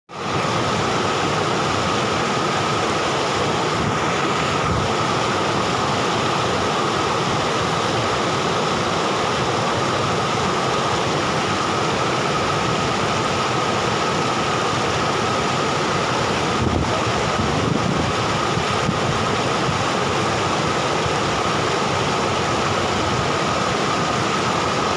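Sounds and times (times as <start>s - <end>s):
rushing water: 0.1s - 24.9s.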